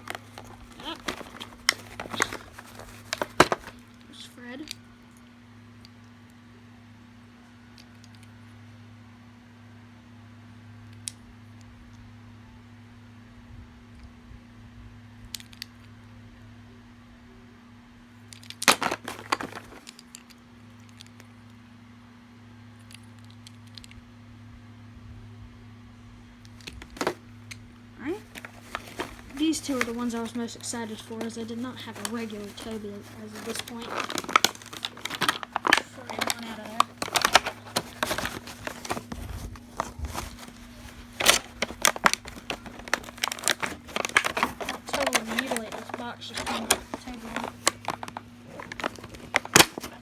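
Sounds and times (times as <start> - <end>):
plastic packaging crackling: 0.0 - 4.0, 18.5 - 20.1, 26.6 - 27.3, 28.0 - 50.0.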